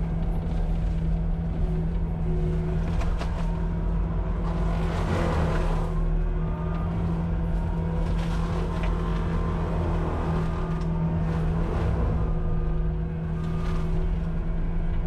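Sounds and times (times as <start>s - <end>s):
loader engine at high revs: 1.4s - 15.0s.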